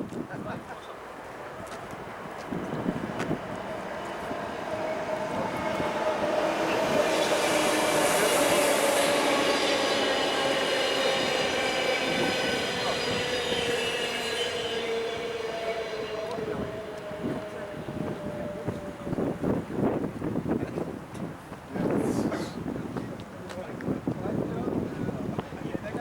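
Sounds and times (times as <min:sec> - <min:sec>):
rushing noise: 0:01.7 - 0:20.6.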